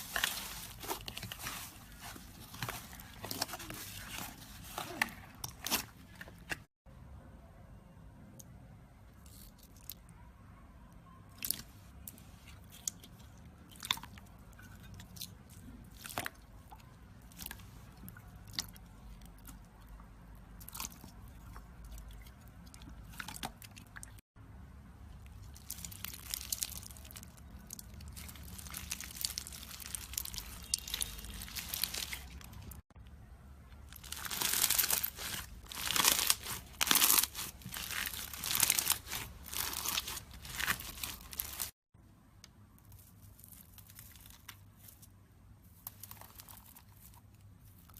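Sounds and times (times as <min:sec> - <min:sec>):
slime crackling: 0:00.0 - 0:05.8, 0:25.4 - 0:32.8, 0:33.9 - 0:41.8.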